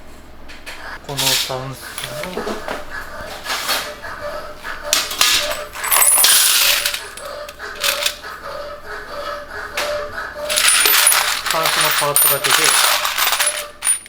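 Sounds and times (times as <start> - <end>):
small metal fittings clinking: 1.2 - 2.5, 5.2 - 8.2, 10.5 - 14.0.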